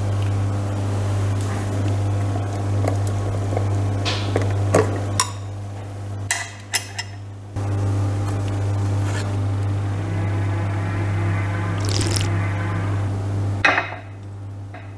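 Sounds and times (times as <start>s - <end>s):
small electric motor humming: 7.7s - 13.2s.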